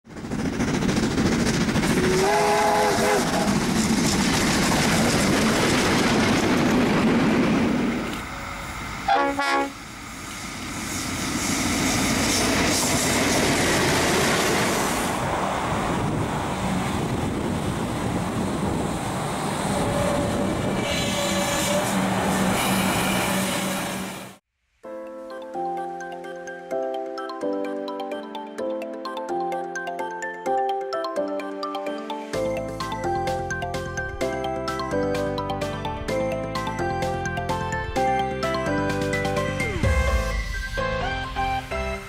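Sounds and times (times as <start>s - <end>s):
steam locomotive chugging: 0.1s - 16.2s, 17.0s - 24.4s
passenger train passing: 0.1s - 24.4s, 32.4s - 42.0s
locomotive horn blast: 2.0s - 3.7s, 9.0s - 9.9s
steam whistle blast: 2.0s - 3.7s, 9.0s - 10.3s.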